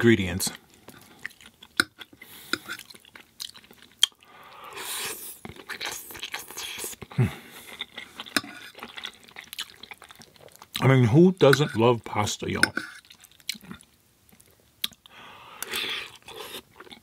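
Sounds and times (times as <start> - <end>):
person chewing pasta: 0.6 - 10.9, 12.7 - 17.0
person humming mm: 7.1 - 7.5.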